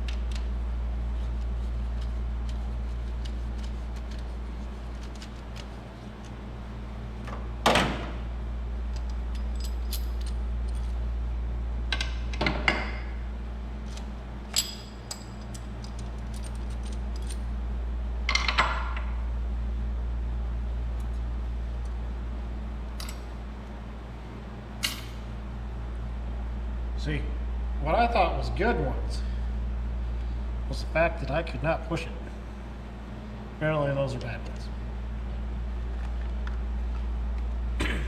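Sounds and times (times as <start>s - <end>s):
steady low hum: 0.0s - 38.0s
metal tools clinking: 9.3s - 10.9s, 13.9s - 17.4s, 23.0s - 23.4s, 24.7s - 25.4s.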